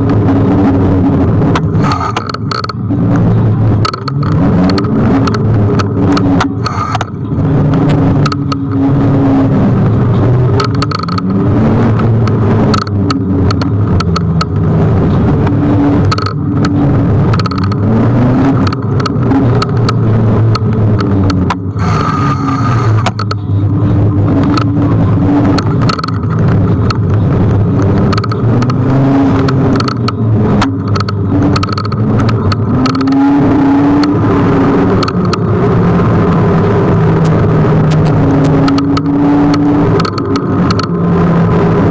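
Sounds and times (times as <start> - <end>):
electric scooter rumble and whine: 0.0 - 41.9
sharp clicks and knocks: 1.2 - 8.9, 9.9 - 41.9.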